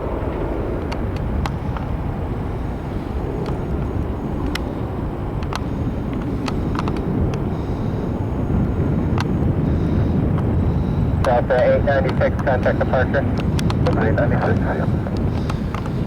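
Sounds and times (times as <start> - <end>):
jet engine rumble: 0.0 - 16.0
faint sharp ticks: 3.4 - 4.8, 5.4 - 8.0, 8.6 - 16.0.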